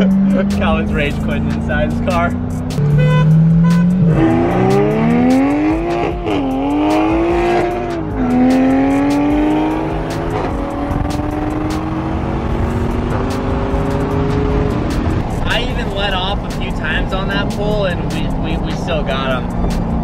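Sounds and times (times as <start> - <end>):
car engine accelerating in cabin: 0.0 - 15.9.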